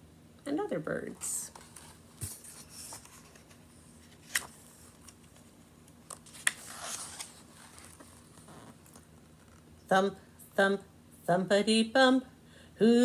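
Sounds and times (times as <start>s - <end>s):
paper pages rustling: 1.5s - 9.6s.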